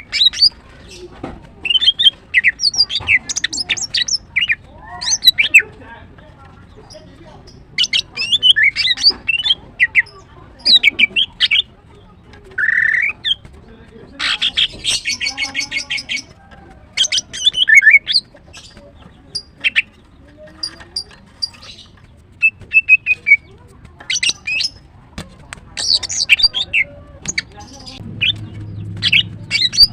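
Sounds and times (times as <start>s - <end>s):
bird chirping and whistling: 0.0s - 0.6s, 1.6s - 5.6s, 7.8s - 10.1s, 12.6s - 13.4s, 17.0s - 18.7s, 21.4s - 23.4s, 24.1s - 24.8s, 25.8s - 29.9s.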